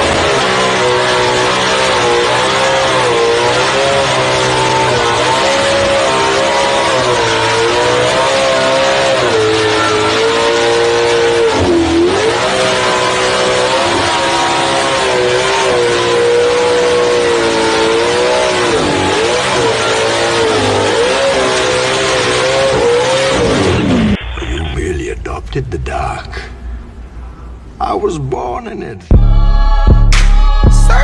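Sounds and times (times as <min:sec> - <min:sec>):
car engine revving high: 0:00.0 - 0:24.2.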